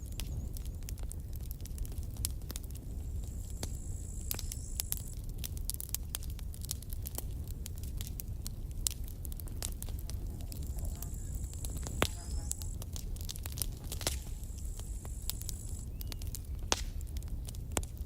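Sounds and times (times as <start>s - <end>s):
campfire crackling and popping: 0.0s - 18.0s
thin high whistle: 3.7s - 4.9s.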